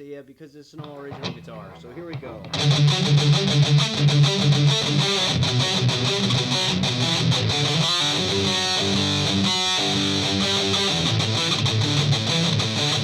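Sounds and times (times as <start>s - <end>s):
distorted electric guitar riff: 0.8s - 13.0s.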